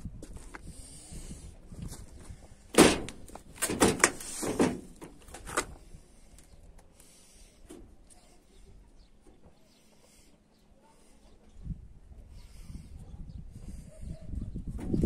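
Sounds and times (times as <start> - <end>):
sharp loud bang: 2.7 - 4.9.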